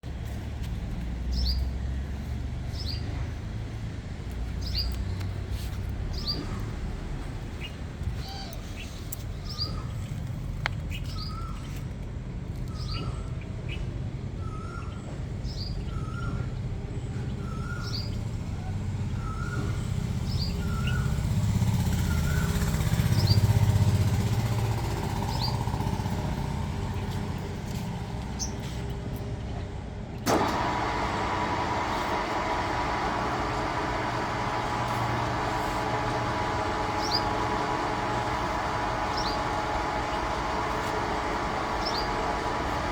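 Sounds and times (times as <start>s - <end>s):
high falling bird chirp: 31.9s - 42.9s.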